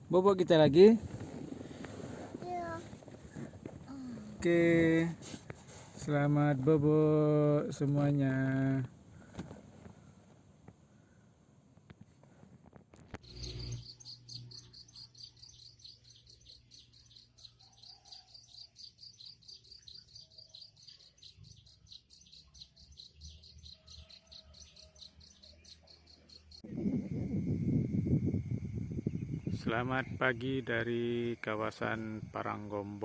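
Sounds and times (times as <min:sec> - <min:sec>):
crickets chirping: 0:25.0 - 0:33.0.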